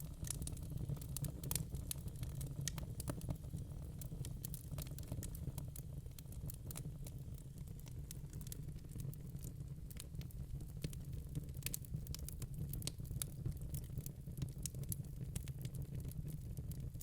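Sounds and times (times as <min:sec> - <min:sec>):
log fire burning: 0:00.0 - 0:16.8
fire crackling and popping: 0:00.0 - 0:17.0.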